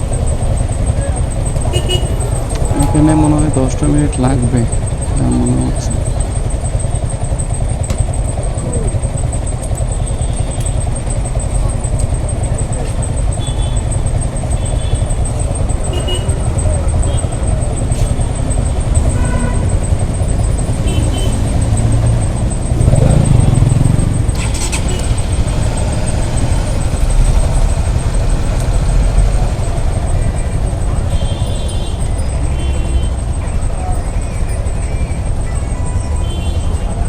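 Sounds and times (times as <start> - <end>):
low rumble of traffic engines: 0.0 - 37.0
nearby vehicle engine: 0.0 - 37.0
short horn beeps: 0.5 - 7.1, 12.2 - 27.8, 29.1 - 33.5.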